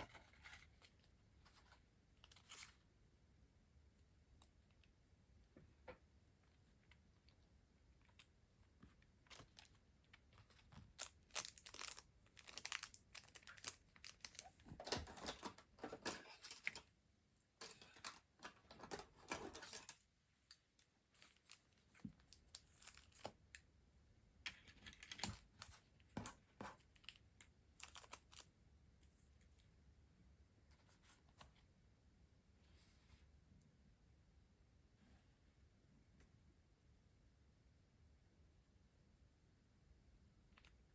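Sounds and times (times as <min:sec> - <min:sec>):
packaging crinkling and tearing: 0:09.3 - 0:15.5.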